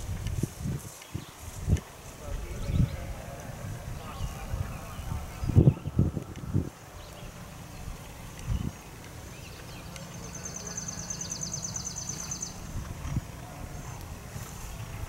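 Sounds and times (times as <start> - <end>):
steady low rumble: 0.0 - 15.0
songbird trilling: 7.0 - 12.7.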